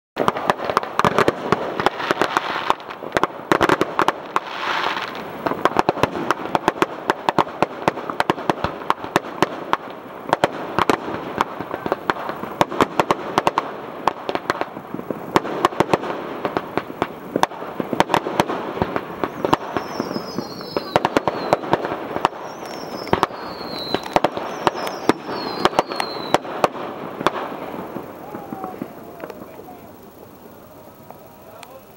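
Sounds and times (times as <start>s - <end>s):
firework hiss: 0.2s - 31.9s
fireworks bangs and crackles: 0.2s - 31.9s.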